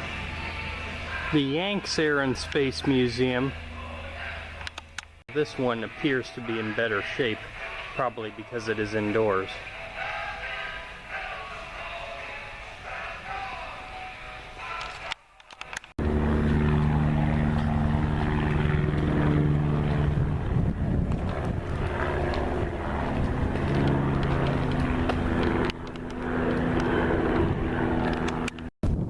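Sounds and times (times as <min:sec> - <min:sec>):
propeller aircraft engine running: 0:00.0 - 0:05.3, 0:15.7 - 0:29.0.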